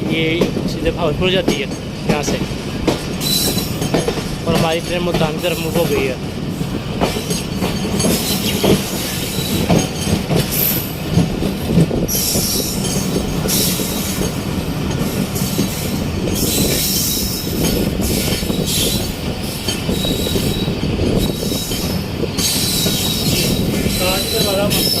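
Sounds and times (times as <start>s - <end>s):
train wheels rumbling on rails: 0.0s - 25.0s
train wheel knocks: 0.3s - 25.0s
high wheel squeal: 16.4s - 19.2s, 19.8s - 25.0s.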